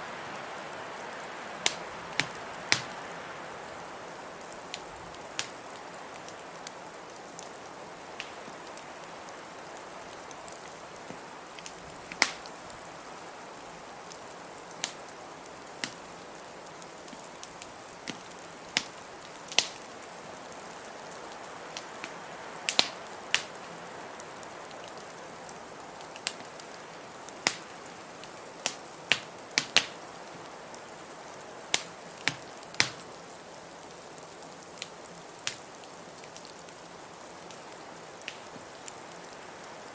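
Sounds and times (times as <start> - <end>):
blizzard wind hiss: 0.0 - 39.9
wood fire crackling: 0.0 - 39.9
fire pops: 1.6 - 3.0, 4.4 - 5.6, 8.2 - 8.8, 11.0 - 12.6, 14.8 - 15.0, 15.8 - 16.0, 16.9 - 19.8, 21.8 - 23.6, 26.0 - 26.8, 27.4 - 30.1, 31.7 - 33.1, 34.8 - 36.6, 38.2 - 39.4.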